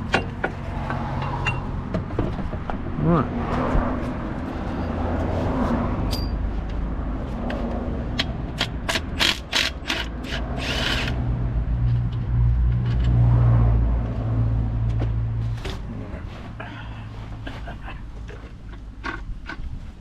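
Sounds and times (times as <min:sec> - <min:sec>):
hand tools knocking on metal: 0:00.0 - 0:03.0.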